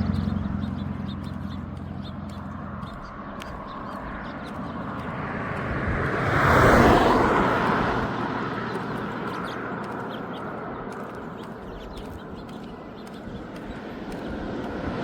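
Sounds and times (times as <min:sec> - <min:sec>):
vehicle driving past: 0:00.0 - 0:15.0.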